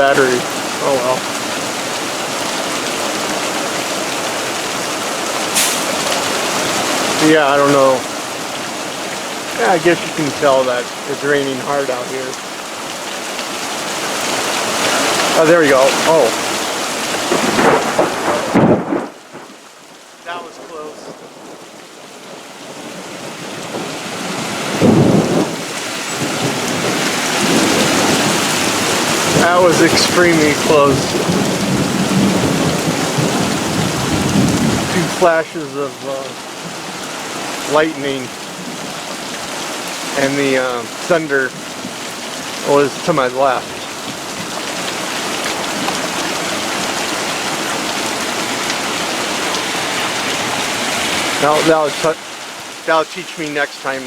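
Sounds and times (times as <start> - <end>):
heavy rain: 0.0 - 54.0
thunder rumbling: 17.1 - 19.6, 24.7 - 35.2.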